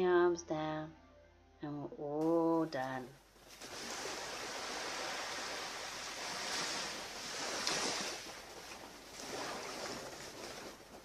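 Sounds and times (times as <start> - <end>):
ocean waves washing onto beach: 3.5 - 11.0.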